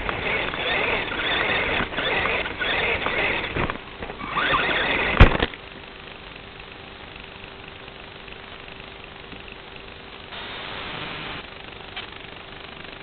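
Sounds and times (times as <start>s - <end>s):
rc car mechanical rattle and whine: 0.0s - 5.9s
faint hum: 0.0s - 13.0s
static hiss: 0.0s - 13.0s.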